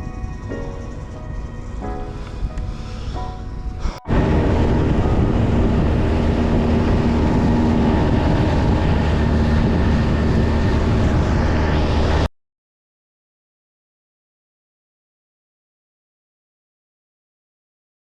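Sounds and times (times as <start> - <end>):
music track: 0.0 - 9.3
wind: 0.0 - 12.3
water noise: 1.7 - 12.3
outboard motor running: 3.8 - 12.3.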